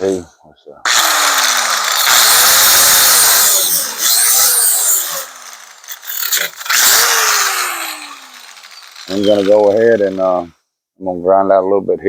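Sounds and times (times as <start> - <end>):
power grinder grinding sheet metal: 0.9 - 10.4.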